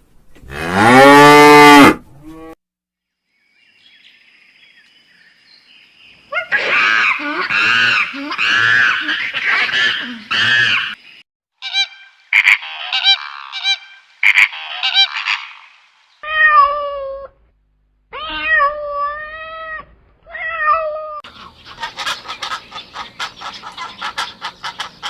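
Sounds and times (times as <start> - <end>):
cat meowing: 16.2 - 17.3, 18.1 - 21.2.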